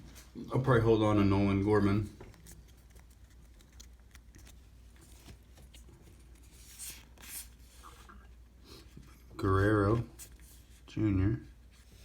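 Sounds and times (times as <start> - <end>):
cards rubbing and sliding: 2.3 - 8.1
cards swishing: 2.3 - 8.1.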